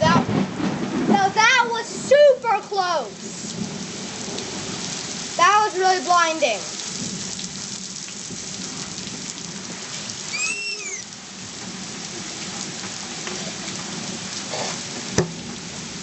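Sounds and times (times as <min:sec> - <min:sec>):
heavy rain falling: 0:00.0 - 0:16.0
high-pitched call: 0:10.3 - 0:11.1.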